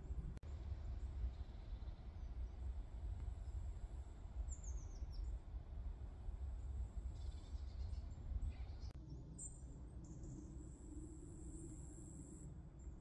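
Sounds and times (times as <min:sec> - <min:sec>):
steady low rumble: 0:00.0 - 0:11.9
faint bird chirps: 0:07.1 - 0:10.8.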